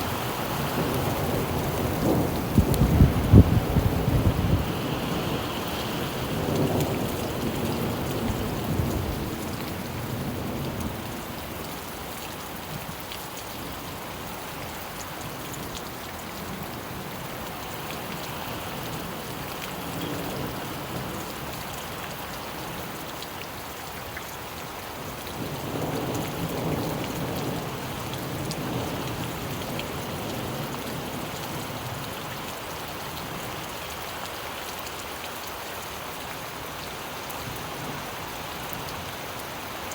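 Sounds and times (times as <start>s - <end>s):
rain falling: 0.0s - 39.9s
thunder rolling: 0.7s - 5.2s.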